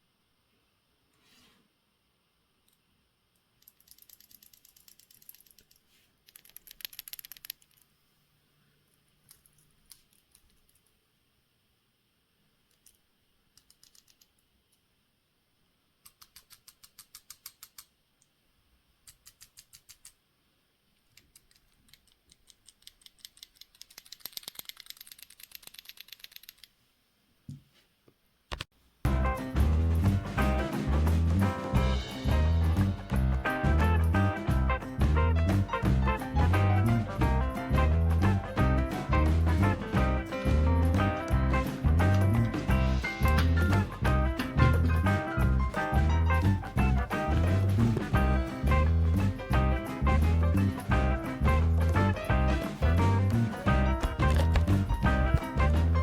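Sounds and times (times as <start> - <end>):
watch rotor rattling and clicking: 3.6 - 7.9, 21.2 - 26.7.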